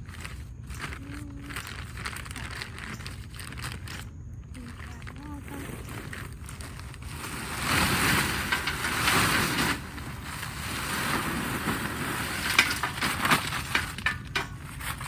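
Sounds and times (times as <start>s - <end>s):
rattle of small stones poured: 5.9s - 15.0s.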